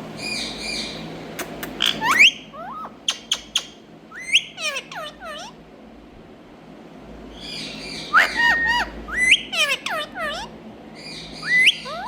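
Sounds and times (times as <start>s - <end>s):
parakeet squawking and whistling: 1.7s - 5.6s, 7.4s - 12.0s.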